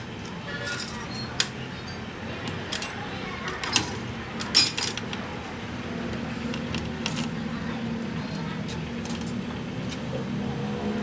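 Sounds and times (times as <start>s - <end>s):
low background hum: 0.0s - 11.0s
metal tools clinking: 0.2s - 2.0s, 2.6s - 3.0s, 3.6s - 5.2s.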